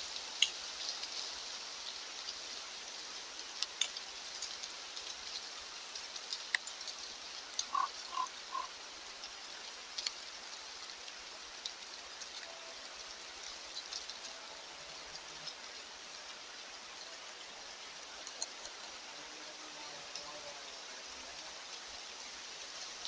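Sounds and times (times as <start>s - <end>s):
outdoor hiss: 0.0s - 23.0s
short animal calls: 7.7s - 8.7s.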